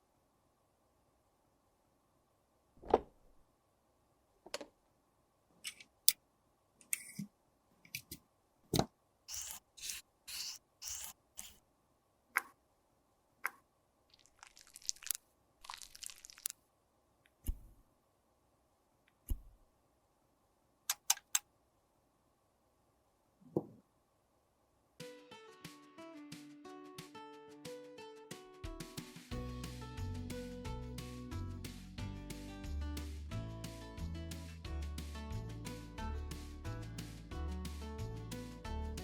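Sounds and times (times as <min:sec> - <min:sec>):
rustling and scraping: 0:09.3 - 0:11.6
short scrapes: 0:09.3 - 0:11.6.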